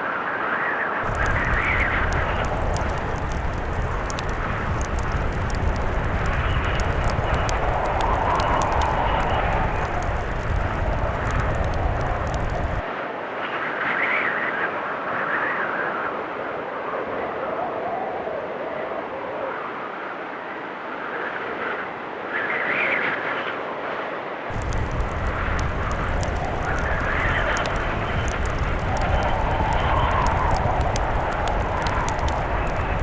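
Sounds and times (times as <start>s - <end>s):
fireplace crackling: 1.0s - 12.8s, 24.5s - 33.0s
low rumble: 1.0s - 12.8s, 24.5s - 33.0s
wind howling in gusts: 1.0s - 12.8s, 24.5s - 33.0s.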